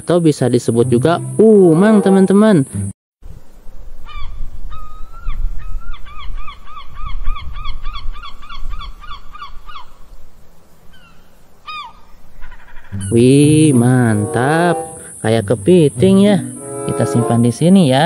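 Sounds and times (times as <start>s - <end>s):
bird calling: 10.9s - 15.3s.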